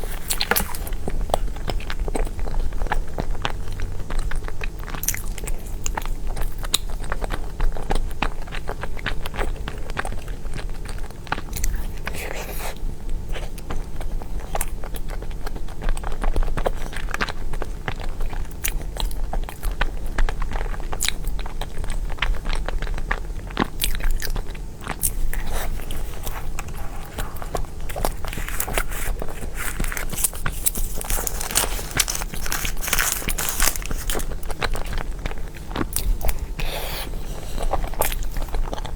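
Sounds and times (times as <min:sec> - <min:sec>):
person chewing and smacking: 0:00.0 - 0:38.9
steady low hum: 0:22.1 - 0:38.9.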